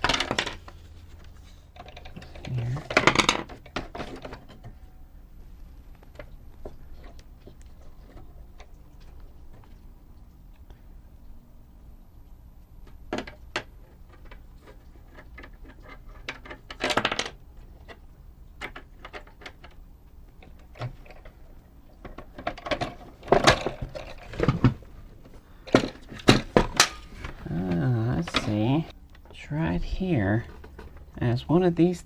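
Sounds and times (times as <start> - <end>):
small plastic parts clicking and clattering: 0.0 - 4.9, 12.8 - 29.3, 30.4 - 31.2.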